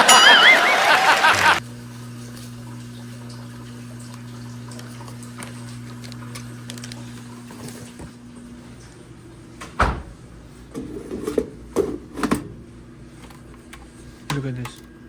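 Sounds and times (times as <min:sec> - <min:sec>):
loud sound: 0:00.0 - 0:01.6.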